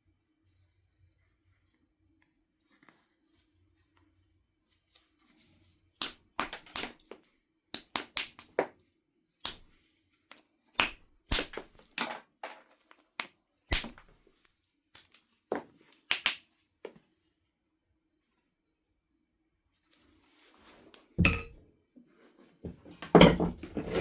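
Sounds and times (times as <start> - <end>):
tool scraping on stone: 23.2 - 24.0.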